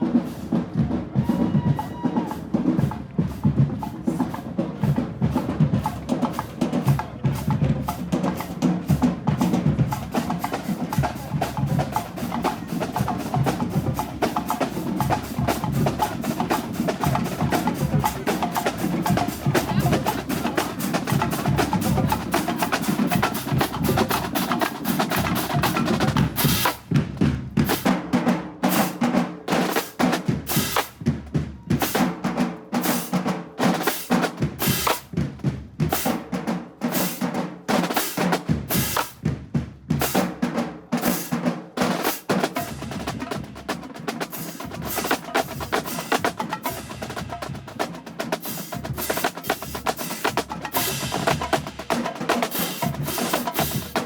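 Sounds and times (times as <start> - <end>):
snare drum strokes: 0.0 - 54.0.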